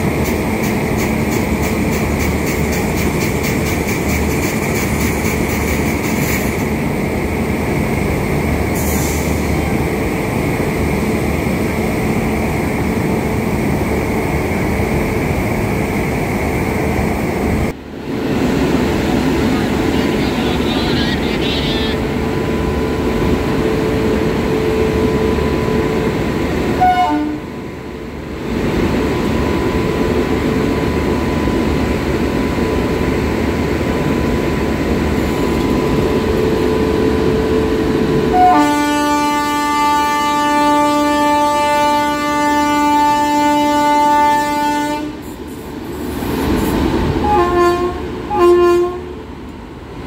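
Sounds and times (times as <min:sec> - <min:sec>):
train rumbling: 0:00.0 - 0:50.0
train horn blast: 0:26.8 - 0:27.5, 0:38.3 - 0:45.3, 0:47.2 - 0:49.1.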